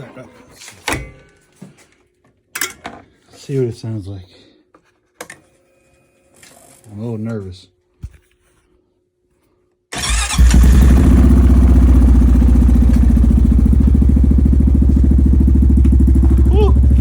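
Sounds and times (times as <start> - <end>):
atv engine starting and idling: 10.0 - 17.0.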